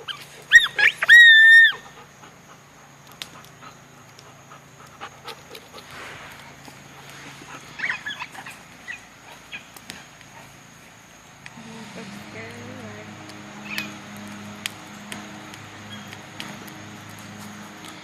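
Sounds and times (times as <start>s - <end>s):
dog yelping: 0.0s - 2.1s, 7.5s - 9.8s, 15.8s - 16.2s.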